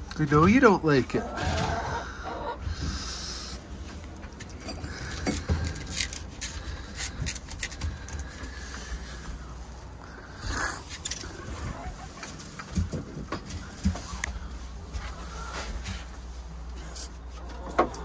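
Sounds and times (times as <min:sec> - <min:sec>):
light clicks and scrapes: 0:03.9 - 0:09.3.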